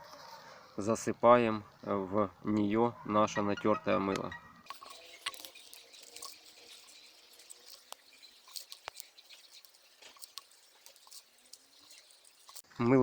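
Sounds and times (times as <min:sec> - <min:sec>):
soap flakes pattering into bottle: 0:04.7 - 0:12.6.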